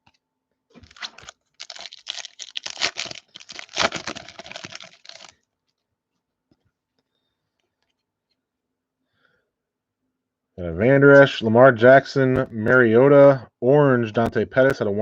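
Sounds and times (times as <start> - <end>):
foil wrapper tearing and crinkling: 0.8 - 5.4.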